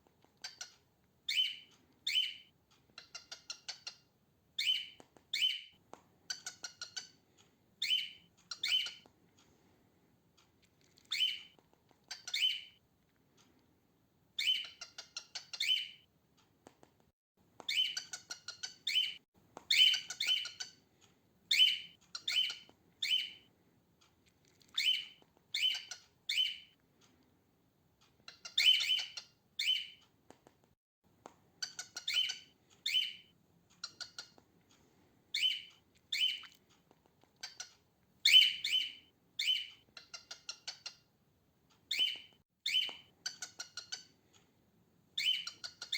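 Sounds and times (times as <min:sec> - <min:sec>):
cockatiel chirping: 0:00.3 - 0:07.2, 0:07.8 - 0:09.1, 0:11.0 - 0:12.8, 0:14.4 - 0:16.1, 0:17.6 - 0:20.8, 0:21.5 - 0:23.5, 0:24.6 - 0:26.8, 0:28.2 - 0:30.0, 0:31.6 - 0:34.4, 0:35.3 - 0:36.6, 0:37.4 - 0:41.1, 0:41.9 - 0:44.2, 0:45.2 - 0:45.9.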